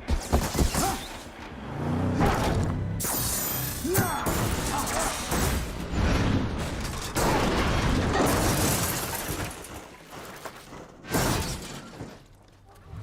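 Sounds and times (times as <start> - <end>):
car crash crunching and shattering: 2.3 - 12.5.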